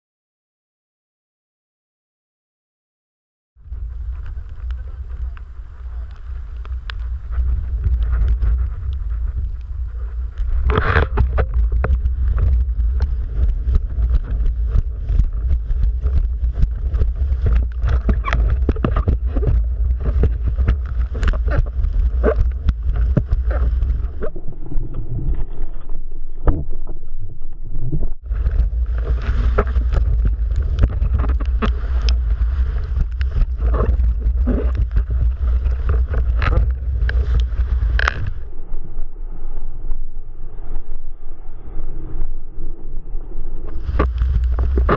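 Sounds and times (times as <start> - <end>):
wind buffeting microphone: 3.6 - 44.9
water splashing and slapping: 10.6 - 25.6, 28.2 - 38.4.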